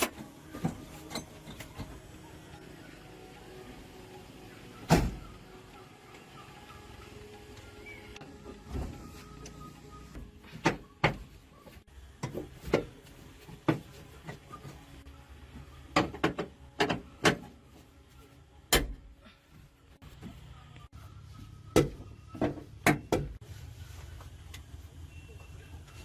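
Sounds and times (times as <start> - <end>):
tools knocking and clanking on metal: 15.9 - 17.6.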